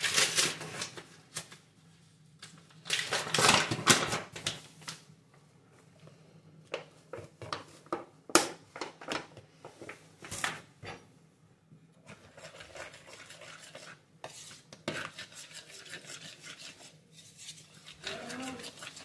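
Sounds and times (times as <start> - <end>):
scraping and stirring dough: 5.7 - 19.0.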